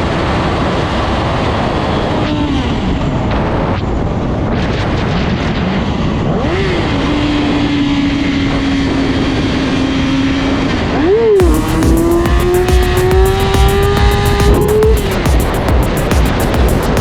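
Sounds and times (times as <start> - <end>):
loud rushing noise: 11.4 - 17.0
motorcycle engine revving: 11.4 - 17.0.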